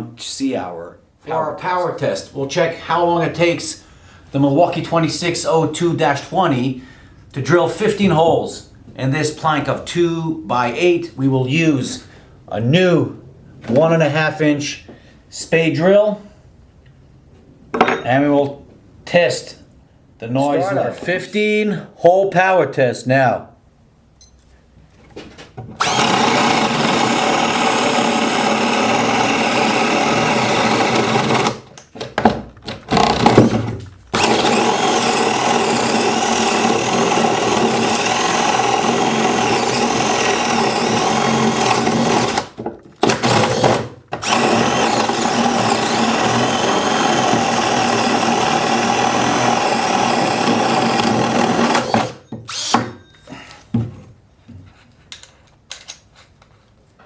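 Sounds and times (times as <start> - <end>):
drill boring into wood: 25.8 - 31.6, 32.9 - 33.5, 34.1 - 52.9.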